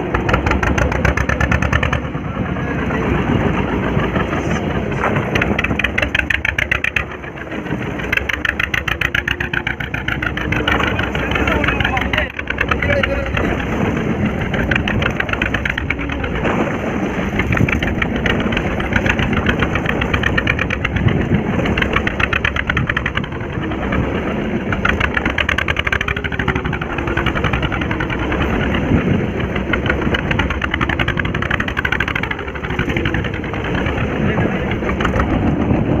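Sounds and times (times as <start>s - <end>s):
boat engine chugging: 0.0s - 36.0s.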